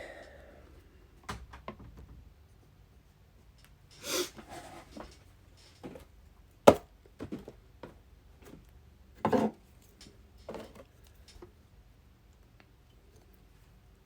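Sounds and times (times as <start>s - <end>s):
knocks and taps on cardboard boxes: 6.7s - 8.0s.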